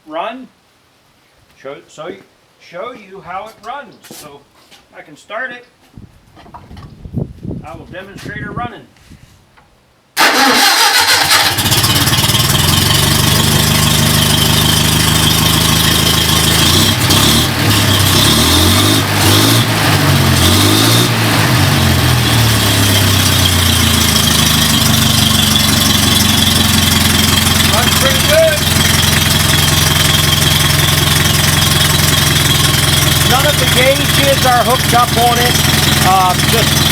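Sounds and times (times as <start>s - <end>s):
gas engine starting and running: 10.2s - 36.9s.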